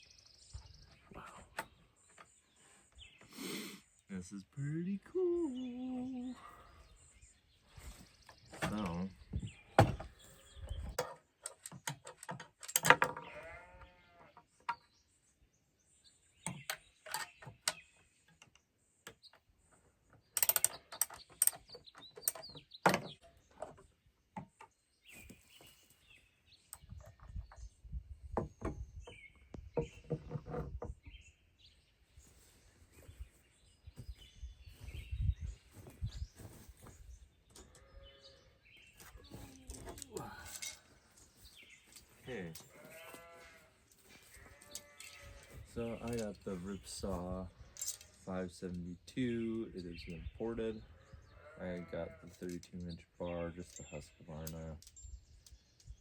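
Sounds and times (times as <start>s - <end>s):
birds chirping: 0.0s - 56.0s
chainsaw parts being handled: 39.5s - 42.8s.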